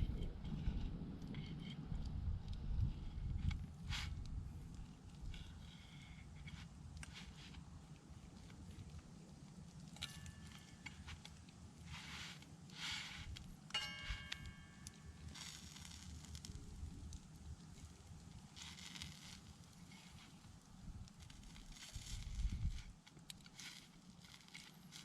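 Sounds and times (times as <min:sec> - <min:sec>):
campfire crackling and popping: 0:00.0 - 0:25.0
metal utensils clinking: 0:13.8 - 0:15.2.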